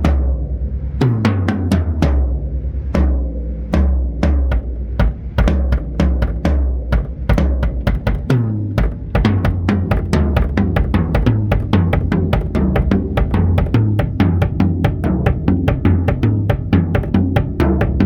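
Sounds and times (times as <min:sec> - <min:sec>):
tom-tom drum fills: 0:03.8 - 0:18.0.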